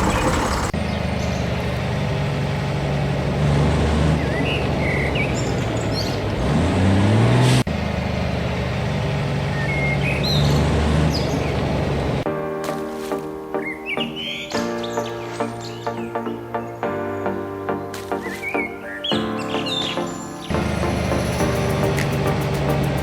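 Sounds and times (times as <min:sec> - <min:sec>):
birds chirping: 0:00.0 - 0:01.7, 0:09.5 - 0:11.7, 0:13.5 - 0:23.0
vehicle engine running and revving: 0:00.0 - 0:12.3, 0:20.5 - 0:23.0.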